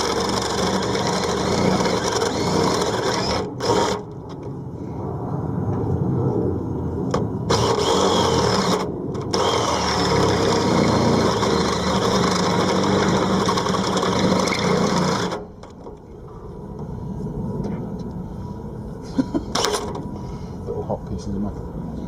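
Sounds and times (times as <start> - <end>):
power drill drilling: 0.0 - 4.1, 7.5 - 15.6.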